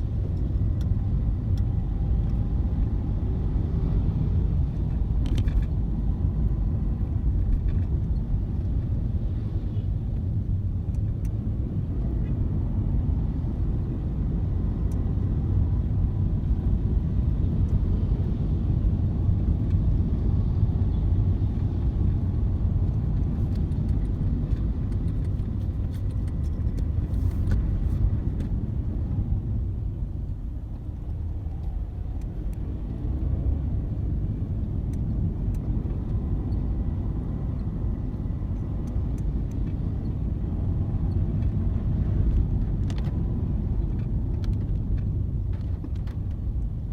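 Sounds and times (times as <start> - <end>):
low rumble of car traffic: 0.0 - 46.9.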